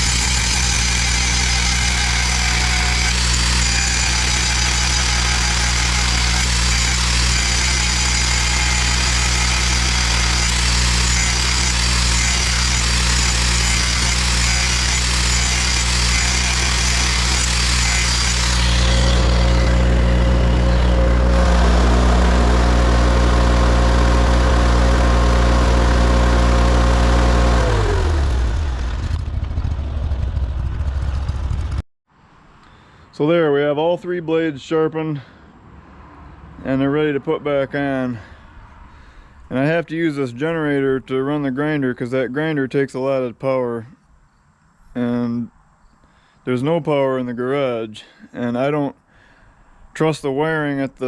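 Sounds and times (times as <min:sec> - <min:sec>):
electric grinder sharpening blade: 0:00.0 - 0:28.6
generator engine running: 0:00.0 - 0:31.8.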